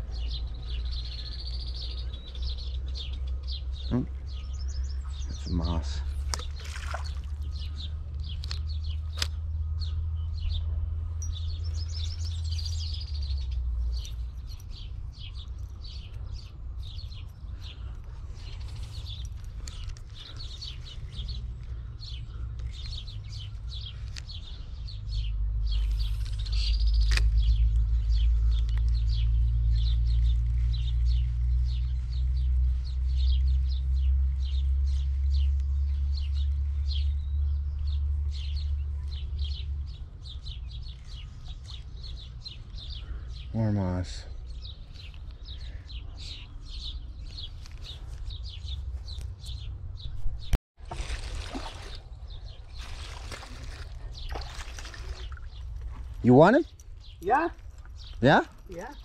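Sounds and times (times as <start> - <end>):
steady low rumble: 0.0 - 43.4
small birds chirping: 0.0 - 59.0.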